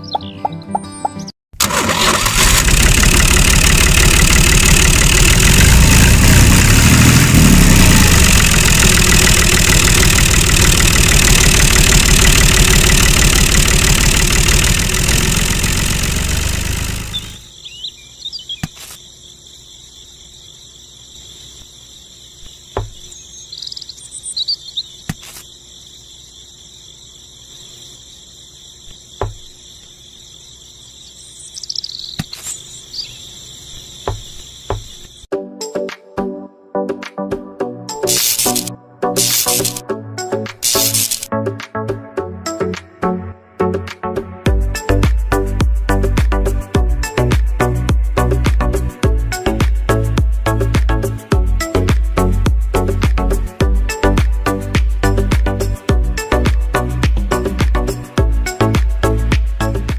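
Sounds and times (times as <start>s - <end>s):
loud motor running: 1.6s - 17.6s, 38.1s - 39.8s
crickets chirping: 17.1s - 35.3s, 37.9s - 41.3s.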